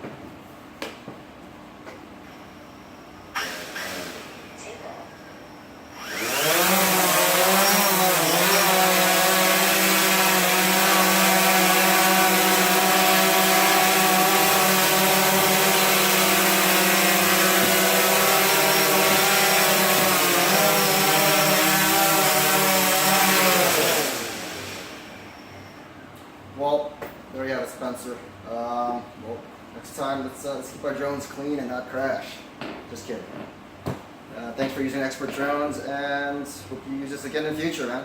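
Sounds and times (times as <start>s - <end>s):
drone propellers whining: 5.9s - 25.8s.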